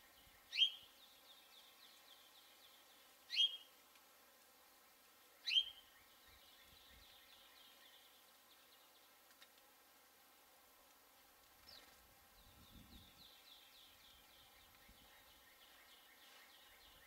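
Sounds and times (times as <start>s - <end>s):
sharp upward-sweeping bird calls: 0.5s - 0.9s, 3.3s - 3.7s, 5.4s - 5.8s.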